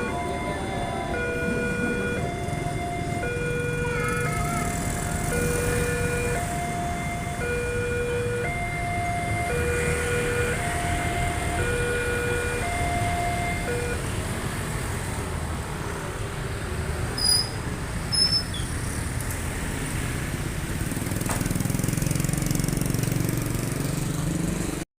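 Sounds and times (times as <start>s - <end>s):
rhythmic engine rumble: 0.0s - 14.1s
road traffic rumble: 0.0s - 24.9s.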